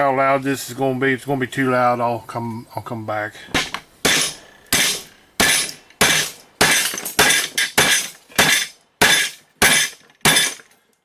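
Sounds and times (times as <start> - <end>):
hammer striking steel machete: 3.6 - 10.7.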